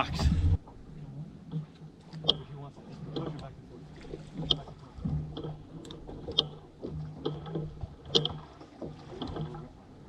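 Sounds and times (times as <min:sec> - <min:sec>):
low hum: 0:00.0 - 0:06.0.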